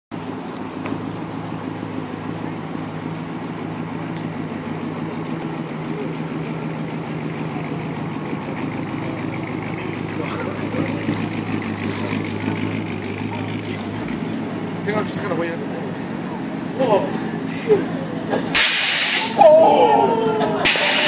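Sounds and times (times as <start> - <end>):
car engine running low revs: 0.1 - 21.0.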